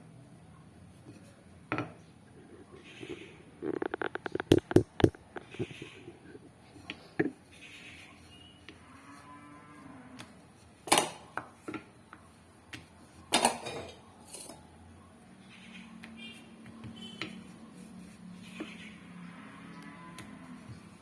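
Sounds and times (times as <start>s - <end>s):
utensils clacking on hard surface: 10.9s - 11.3s, 13.3s - 14.7s.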